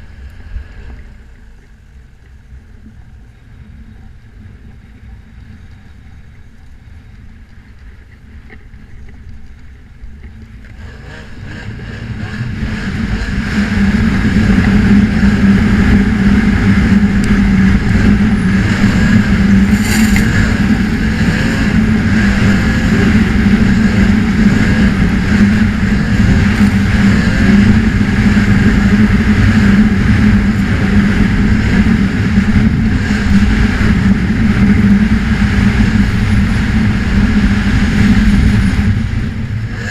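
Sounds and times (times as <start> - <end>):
snowmobile engine: 10.7 - 39.9.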